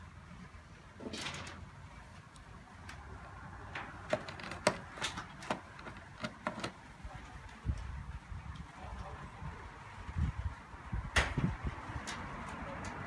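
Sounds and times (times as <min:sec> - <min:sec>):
plastic parts scraping: 0:03.7 - 0:06.8
plastic clicks and knocks: 0:03.8 - 0:06.8.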